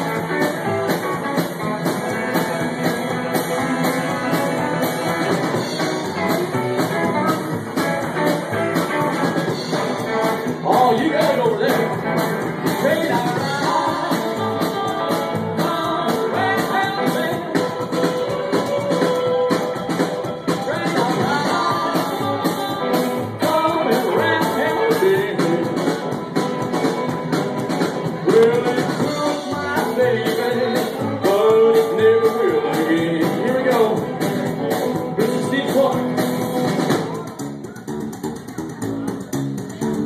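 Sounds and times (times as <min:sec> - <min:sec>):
rockabilly band playing: 0:00.0 - 0:40.0
person singing: 0:12.6 - 0:26.2, 0:28.1 - 0:36.1.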